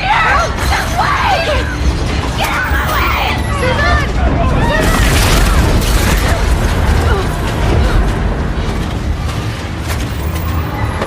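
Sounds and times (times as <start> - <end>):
crashes of collapsing structures: 0.3 - 11.0
low earthquake rumble: 3.7 - 10.5.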